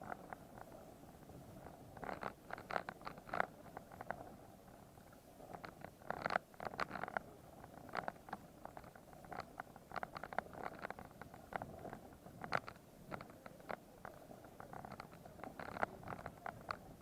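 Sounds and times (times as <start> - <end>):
crunching and clicking on rocky trail: 7.8 - 16.9.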